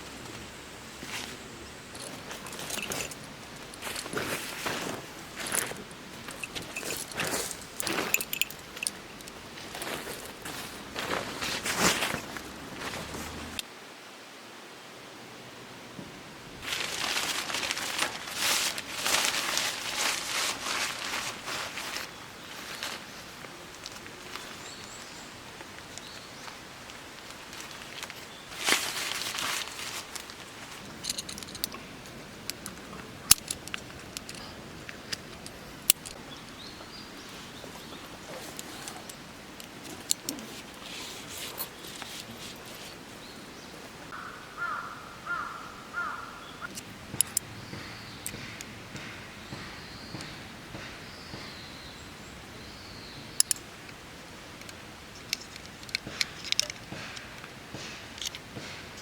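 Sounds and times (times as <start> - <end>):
brief rustle: 37.2 - 43.1.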